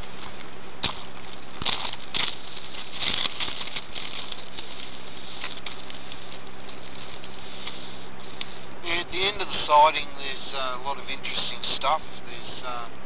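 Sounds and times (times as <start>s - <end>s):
footsteps crunching on gravel: 0.0s - 12.8s
steady hiss: 0.0s - 13.0s.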